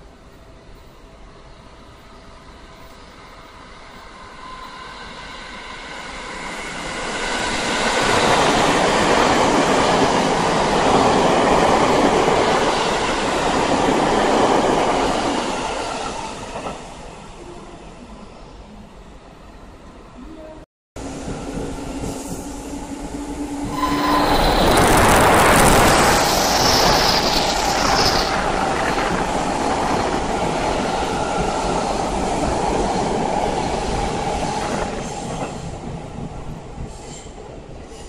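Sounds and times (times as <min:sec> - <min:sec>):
electric train passing: 0:00.0 - 0:20.1, 0:21.0 - 0:38.0
high wheel squeal: 0:23.6 - 0:28.5.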